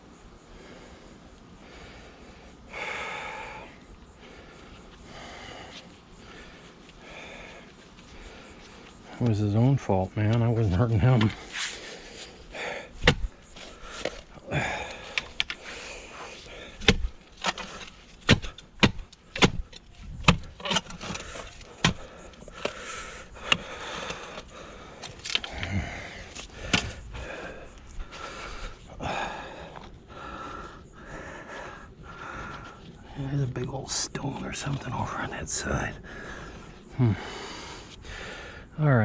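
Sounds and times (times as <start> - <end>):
scraping and crunching soil: 7.7 - 29.0
digging tool striking soil: 13.0 - 13.3, 16.8 - 22.8, 26.5 - 27.0.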